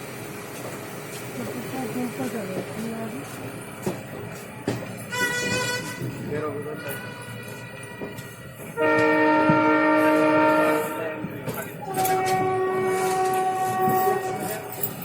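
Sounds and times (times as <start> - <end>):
moving train rattle: 0.0 - 15.0
locomotive horn blasts: 5.1 - 14.7.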